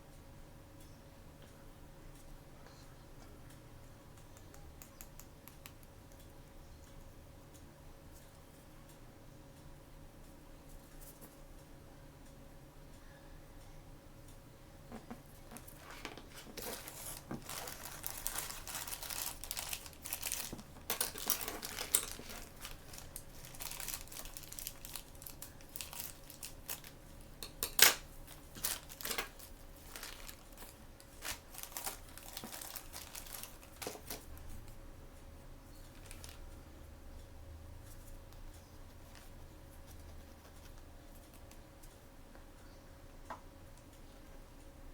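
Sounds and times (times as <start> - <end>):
packaging crinkling and tearing: 15.6 - 27.0, 27.7 - 34.4, 35.9 - 36.5.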